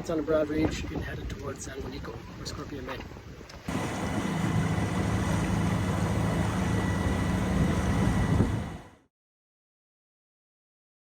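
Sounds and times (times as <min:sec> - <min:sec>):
boat rushing through water: 0:00.0 - 0:09.1
low hum: 0:03.7 - 0:09.1.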